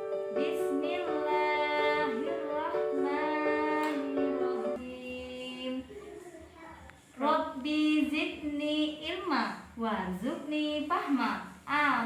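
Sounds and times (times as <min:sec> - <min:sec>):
music: 0:00.0 - 0:05.0
person singing a melodic prayer: 0:00.3 - 0:06.0.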